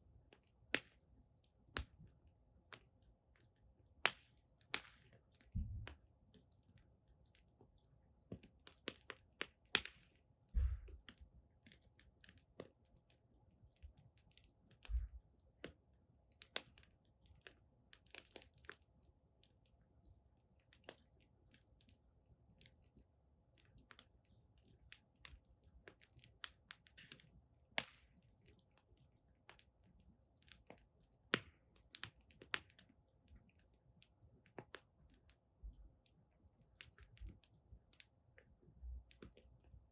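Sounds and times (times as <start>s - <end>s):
firewood crackling and popping: 0.2s - 19.7s, 20.3s - 39.9s
soft low thump: 10.5s - 11.0s.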